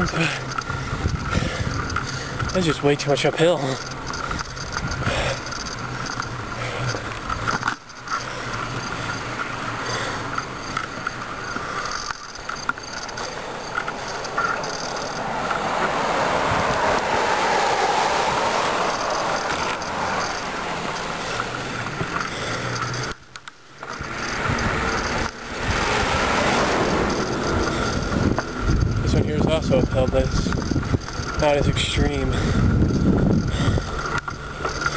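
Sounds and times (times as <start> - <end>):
bicycle tyre noise: 0.0 - 34.9
wind on microphone: 0.8 - 2.6, 15.1 - 20.2, 24.1 - 34.4.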